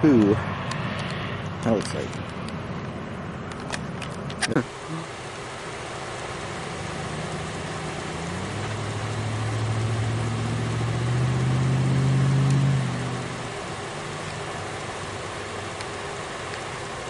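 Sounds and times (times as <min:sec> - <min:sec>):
engine drone: 0:00.0 - 0:17.0.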